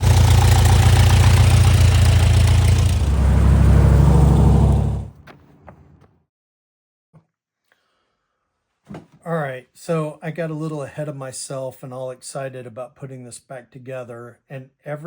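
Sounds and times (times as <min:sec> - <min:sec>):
motor running with pulsing hum: 0:00.0 - 0:05.1.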